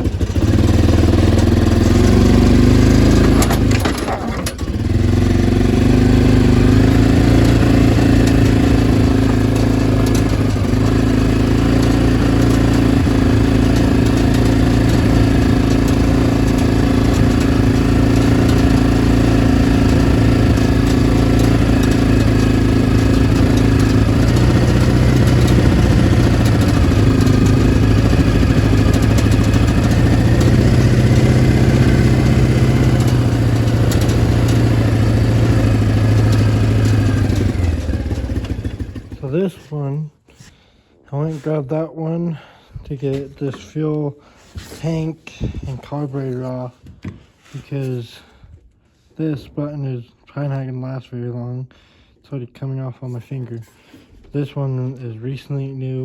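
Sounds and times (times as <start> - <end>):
lawn mower engine running: 0.0 - 39.7.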